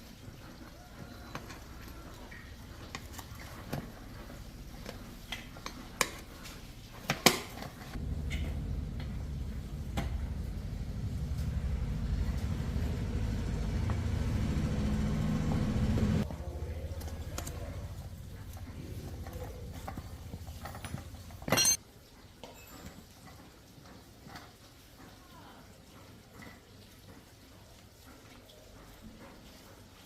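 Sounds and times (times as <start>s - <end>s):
motor rumbling: 8.0s - 21.7s.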